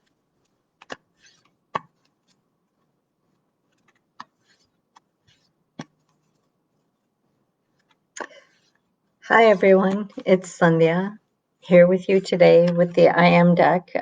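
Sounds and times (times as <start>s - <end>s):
soft rustles: 0.0s - 10.3s.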